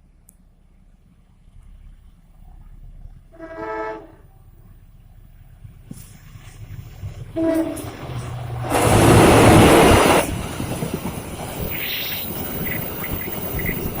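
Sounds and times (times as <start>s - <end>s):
train rushing and rolling: 0.5s - 14.0s
train horn: 3.3s - 4.4s, 7.3s - 8.3s.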